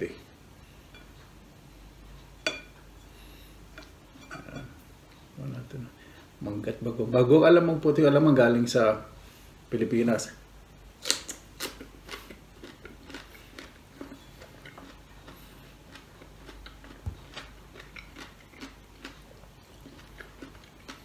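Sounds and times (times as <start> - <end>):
person chewing crunchy food: 11.0 - 21.0.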